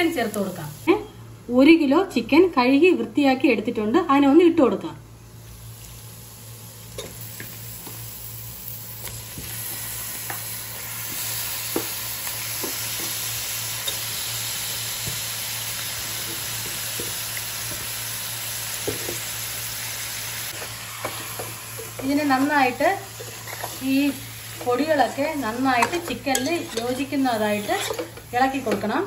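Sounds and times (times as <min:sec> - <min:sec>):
chicken sizzling in a pan: 0:05.4 - 0:29.0
steel spoon stirring and clicking: 0:25.8 - 0:28.9.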